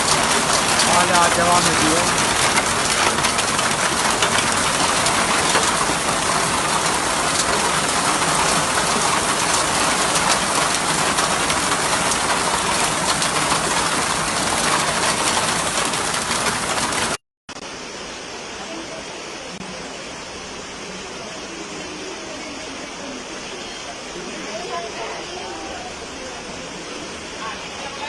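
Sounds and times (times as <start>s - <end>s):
heavy hail and rain pelting: 0.0s - 17.2s.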